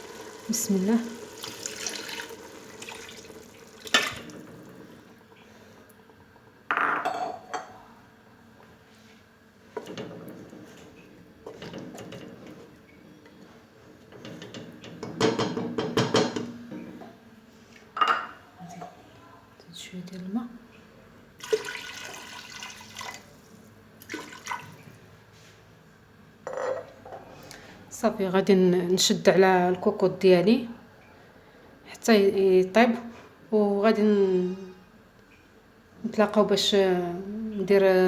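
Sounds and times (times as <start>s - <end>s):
water pouring into pot: 0.0s - 5.4s, 21.4s - 24.9s
metal pot and utensils clattering: 3.8s - 4.6s.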